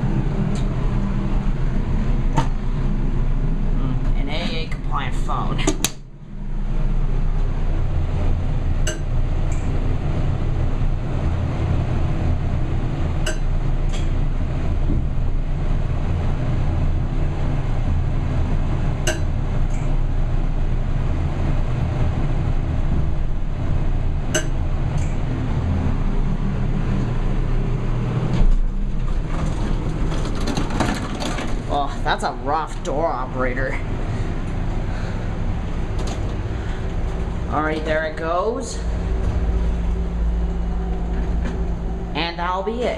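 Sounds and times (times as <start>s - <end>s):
elevator low rumble: 0.0s - 42.9s
elevator stopping bump: 22.7s - 31.8s, 39.0s - 42.1s.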